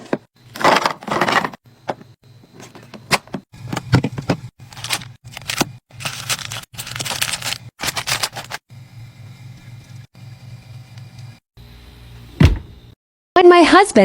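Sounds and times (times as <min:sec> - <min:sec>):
steady low hum: 0:00.4 - 0:13.0
food packaging rustling: 0:03.6 - 0:08.6.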